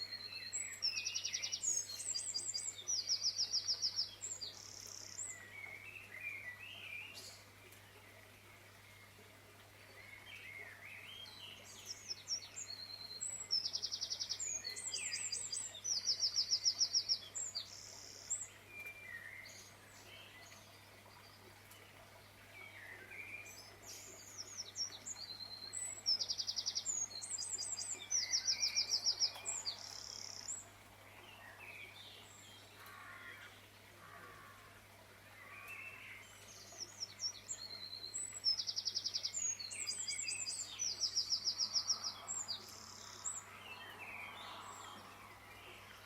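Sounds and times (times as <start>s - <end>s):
songbird chirps and trills: 0.0s - 46.0s.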